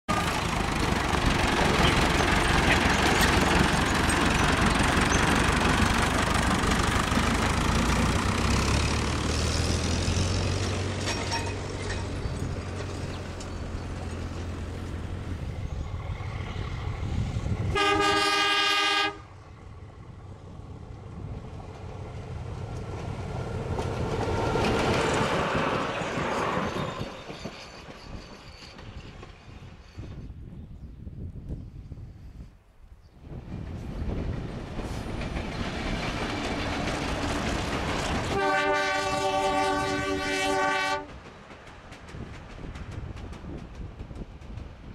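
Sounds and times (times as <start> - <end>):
tractor engine running: 0.1 - 15.3
train carriages rumbling past: 0.1 - 32.4, 33.2 - 44.9
train horn blast: 17.7 - 19.4, 38.3 - 41.2.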